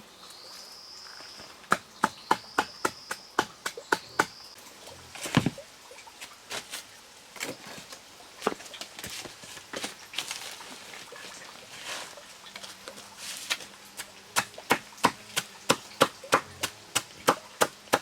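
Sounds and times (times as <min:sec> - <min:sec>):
knife chopping banana stem: 0:14.4 - 0:18.0.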